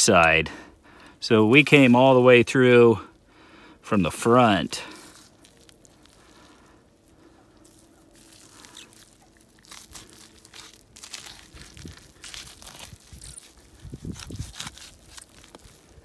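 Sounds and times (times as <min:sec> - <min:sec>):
knife cutting through ham: 0:12.3 - 0:15.7.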